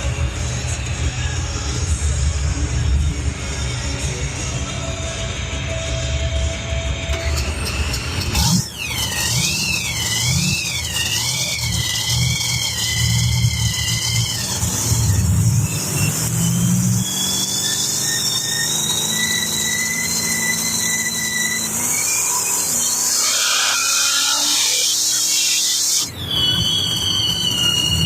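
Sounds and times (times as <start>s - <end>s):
steady high whine: 0.0s - 28.0s
truck engine rumbling: 0.0s - 28.0s
high wavering squeal: 7.1s - 28.0s.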